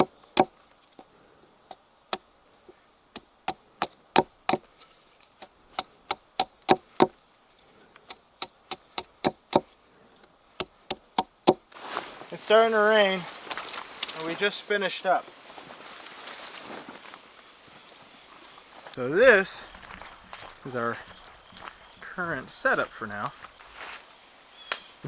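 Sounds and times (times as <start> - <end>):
stake being hammered into ground: 0.0 - 0.6, 3.1 - 4.7, 5.7 - 7.2, 8.1 - 9.7, 10.6 - 11.7
insects droning: 0.0 - 25.0.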